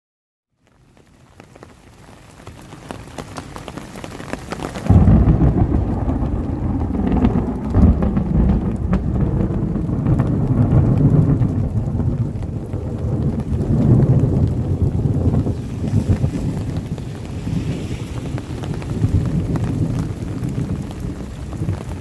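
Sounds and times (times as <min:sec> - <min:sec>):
rain falling: 0:00.5 - 0:22.0
loud low rumble: 0:04.9 - 0:22.0.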